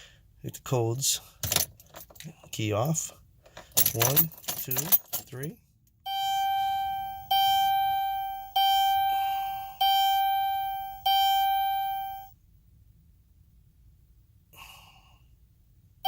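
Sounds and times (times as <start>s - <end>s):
car warning chime dinging: 6.1s - 12.3s.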